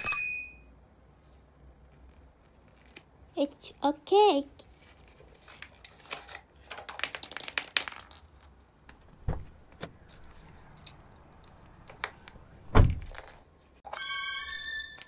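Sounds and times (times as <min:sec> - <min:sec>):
packaging crinkling: 0:04.7 - 0:08.9, 0:12.9 - 0:13.5.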